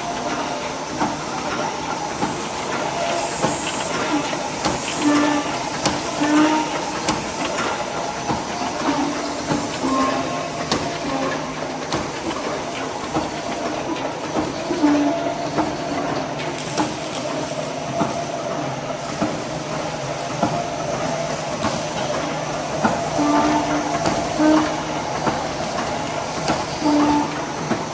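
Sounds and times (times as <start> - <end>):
machine clattering and humming: 0.0 - 27.9.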